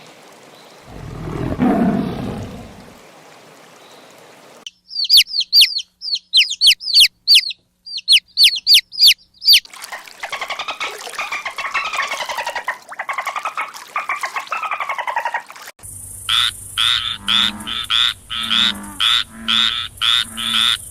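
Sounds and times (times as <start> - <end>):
frogs croaking: 0.9 - 3.0, 16.2 - 20.9
bird chirping: 4.7 - 9.6.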